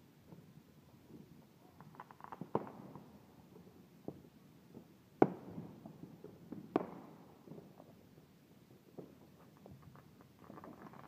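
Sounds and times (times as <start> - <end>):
fireworks banging: 0.2 - 8.0.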